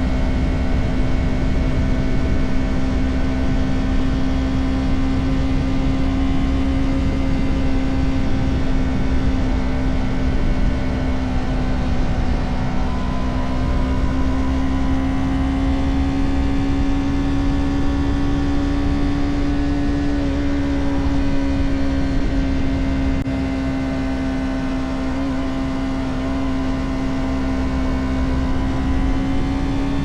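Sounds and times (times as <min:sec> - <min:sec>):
motorcycle engine cruising: 0:00.0 - 0:30.0.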